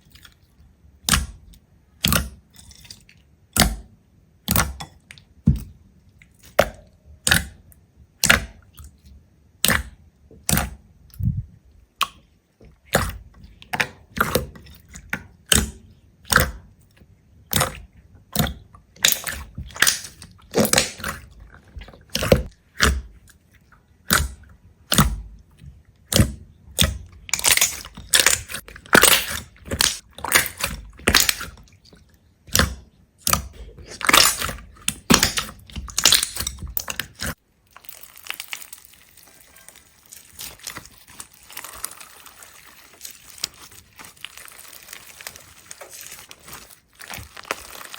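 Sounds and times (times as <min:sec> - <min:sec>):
brittle crunching and cracking: 0:27.3 - 0:31.6, 0:33.3 - 0:47.9.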